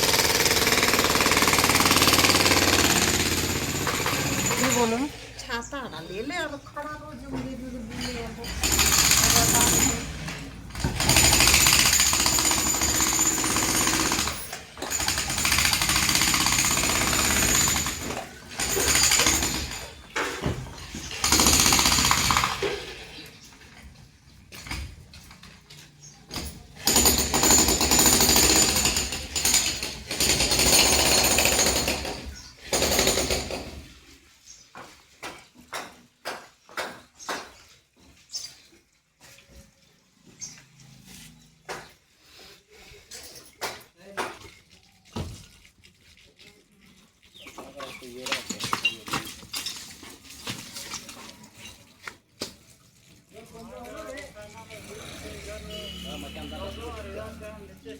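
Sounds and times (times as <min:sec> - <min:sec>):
jackhammer hammering: 0:00.0 - 0:05.0, 0:08.0 - 0:20.0, 0:21.1 - 0:22.9, 0:26.3 - 0:33.9.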